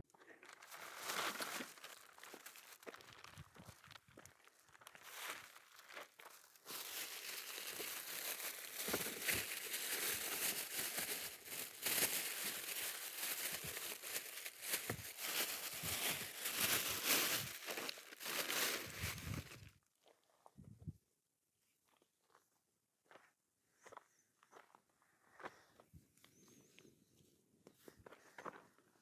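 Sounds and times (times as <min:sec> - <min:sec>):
rustling and crinkling: 0:00.1 - 0:19.8.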